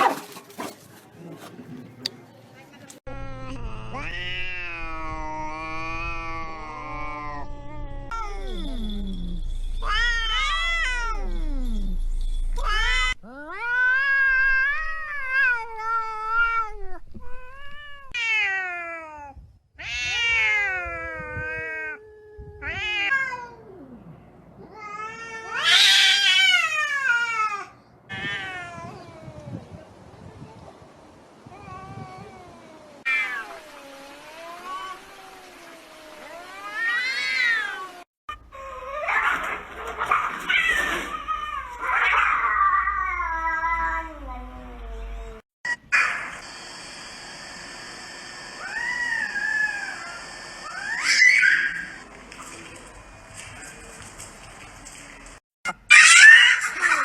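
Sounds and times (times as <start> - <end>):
cats yowling in a fight: 18.1 - 23.8, 24.7 - 29.4, 36.2 - 46.1, 48.6 - 52.0, 55.9 - 57.0.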